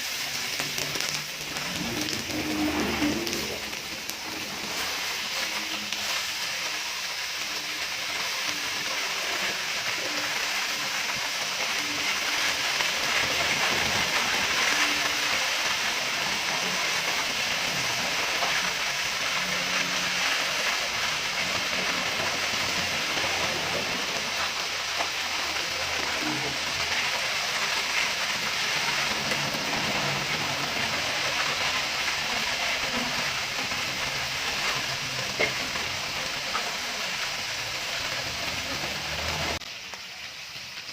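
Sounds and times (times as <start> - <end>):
ribs sizzling on a grill pan: 0.0 - 40.9.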